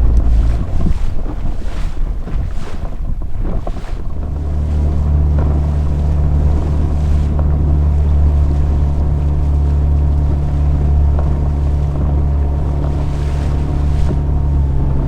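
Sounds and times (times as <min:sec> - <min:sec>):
outboard motor droning: 0:00.0 - 0:15.0
water noise: 0:00.0 - 0:15.0
wind: 0:00.0 - 0:15.0.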